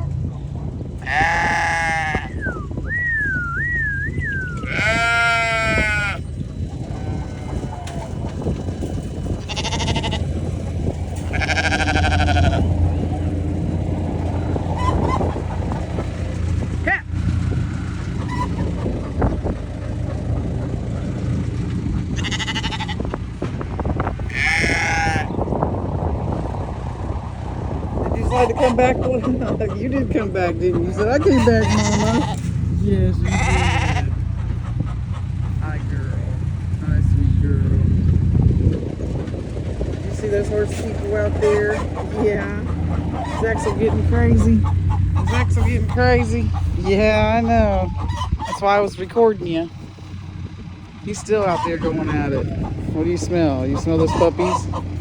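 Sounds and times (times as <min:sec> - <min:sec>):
low rumble: 0:00.0 - 0:55.0
sheep bleating: 0:01.0 - 0:02.6, 0:04.4 - 0:08.2, 0:09.3 - 0:10.4, 0:11.2 - 0:12.9, 0:22.1 - 0:23.1, 0:24.2 - 0:25.4, 0:31.4 - 0:32.5, 0:33.2 - 0:34.2.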